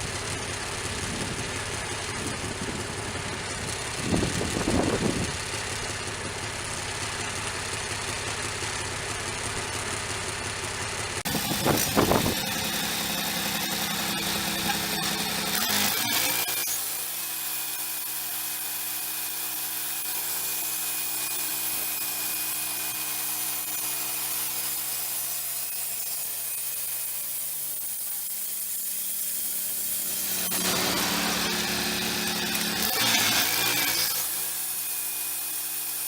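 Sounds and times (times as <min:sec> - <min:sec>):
sawmill engine hum: 0:00.0 - 0:36.0
band blade sawing through log: 0:11.2 - 0:36.0.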